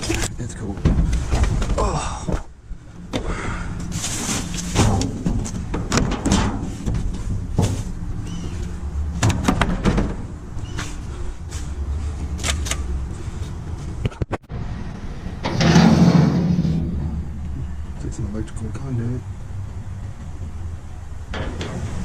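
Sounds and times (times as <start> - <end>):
low rumble: 0.0 - 22.0
objects clattering in a dumpster: 3.1 - 11.7, 15.4 - 17.8, 21.3 - 22.0.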